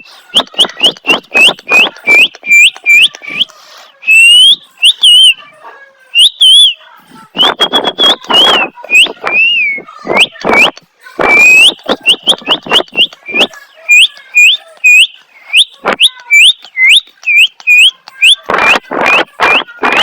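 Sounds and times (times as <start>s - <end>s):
parrot squawking: 0.3s - 5.5s, 11.2s - 20.0s
parrot whistling: 0.4s - 5.4s, 6.1s - 6.8s, 7.4s - 10.7s, 11.3s - 20.0s.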